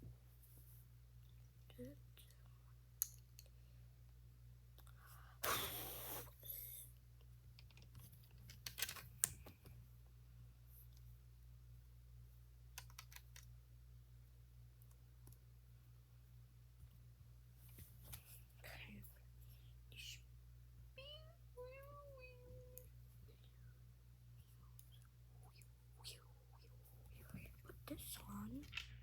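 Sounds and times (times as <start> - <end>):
low steady hum: 0.0 - 29.0
plastic bricks clicking together: 12.8 - 13.5.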